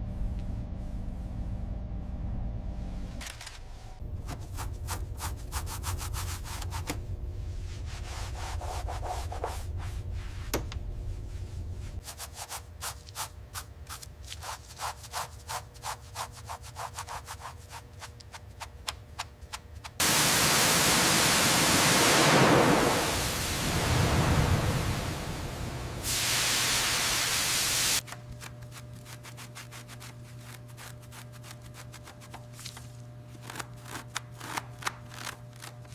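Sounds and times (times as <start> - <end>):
scrubbing strokes: 4.2 - 10.5
loud steady hiss: 20.0 - 28.0.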